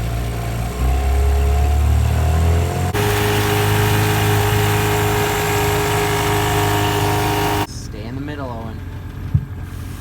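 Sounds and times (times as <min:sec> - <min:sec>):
outboard motor running: 0:00.0 - 0:07.7.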